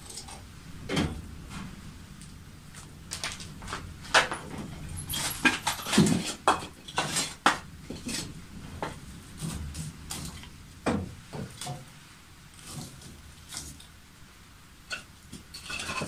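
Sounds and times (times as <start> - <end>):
kitchenware clinking: 4.1 - 9.0.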